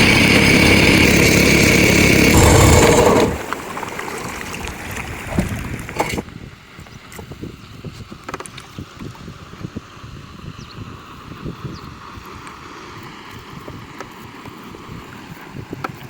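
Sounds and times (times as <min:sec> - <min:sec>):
small engine running: 0:00.0 - 0:04.4.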